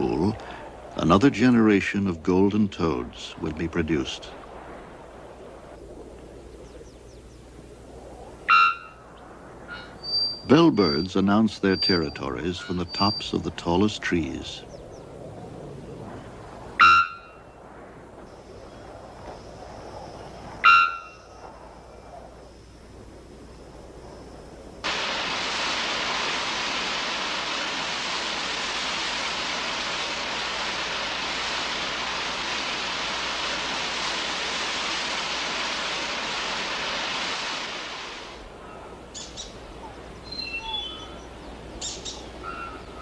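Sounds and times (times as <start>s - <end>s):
falling water rushing: 0.0s - 5.9s, 24.8s - 38.6s
birds calling: 0.0s - 17.6s, 24.8s - 43.0s.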